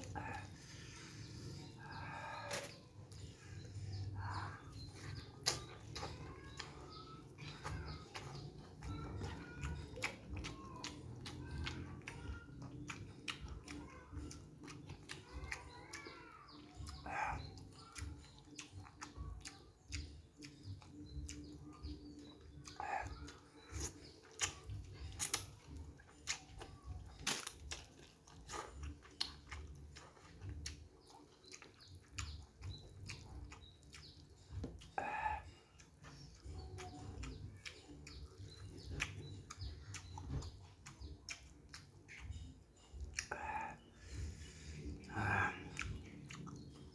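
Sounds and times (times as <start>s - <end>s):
bird chirping: 0.0s - 46.9s
chewing noodles and rice: 0.0s - 46.9s
wet mouth clicks and smacks: 22.6s - 35.0s.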